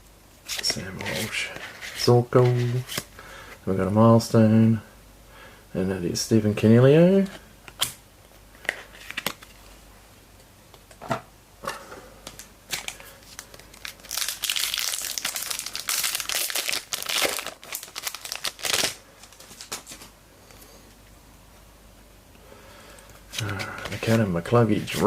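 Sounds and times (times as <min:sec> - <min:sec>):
wrapper crinkling: 0:12.7 - 0:20.1.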